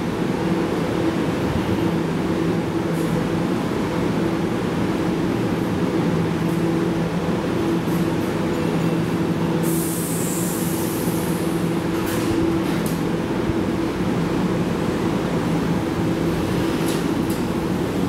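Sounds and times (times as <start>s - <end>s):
electric train humming: 0.0s - 18.0s
compressed air hiss: 9.6s - 11.5s.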